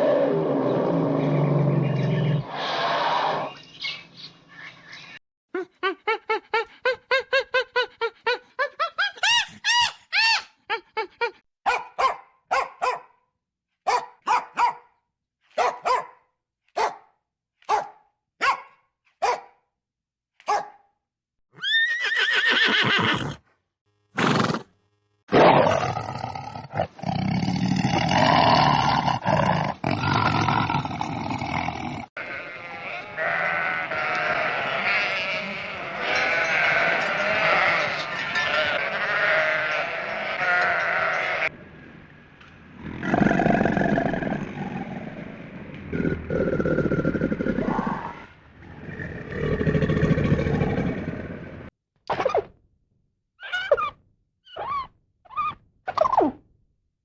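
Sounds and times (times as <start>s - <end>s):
many overlapping animal calls: 0.0s - 4.3s, 32.2s - 41.5s
animal calls: 32.2s - 41.5s.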